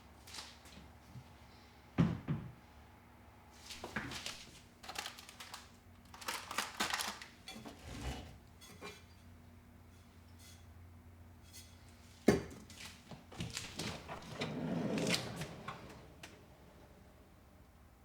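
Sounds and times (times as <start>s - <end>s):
dishes and utensils clattering: 6.8s - 9.3s.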